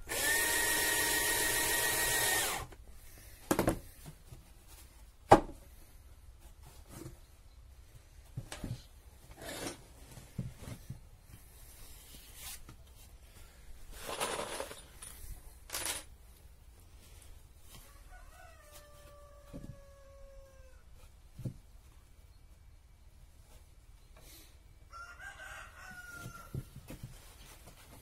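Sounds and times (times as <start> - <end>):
rooster crowing: 17.8 - 20.9, 24.9 - 26.6.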